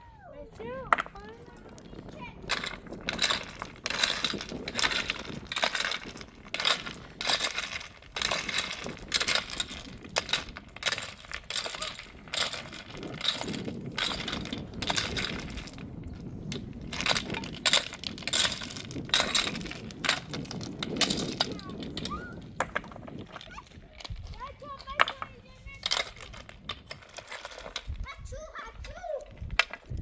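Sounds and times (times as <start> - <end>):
hard objects clinking and knocking: 0.5 - 28.0, 28.8 - 30.0.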